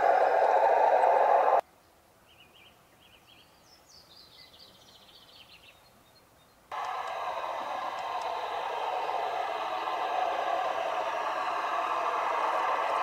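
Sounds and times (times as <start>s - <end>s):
loud steady noise with clicks: 0.0s - 1.6s, 6.7s - 13.0s
songbird singing: 0.0s - 6.8s.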